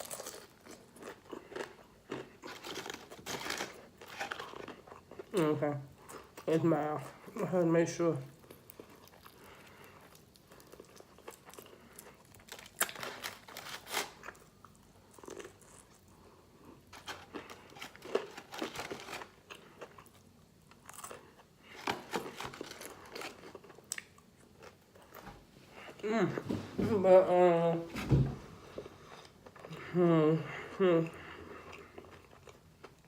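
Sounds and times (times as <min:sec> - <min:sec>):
crunching fried chicken: 0:00.0 - 0:05.4, 0:08.4 - 0:16.0, 0:16.8 - 0:25.0.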